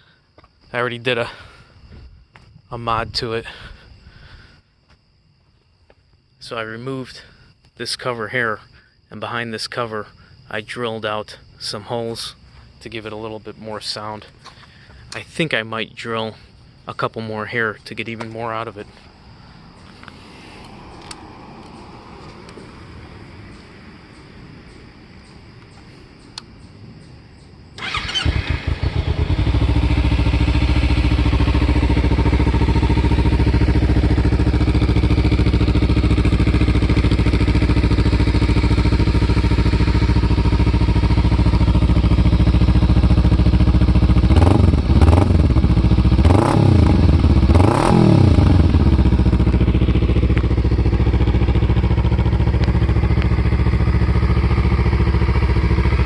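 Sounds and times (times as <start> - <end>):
motorcycle engine idling and revving: 27.8 - 56.0.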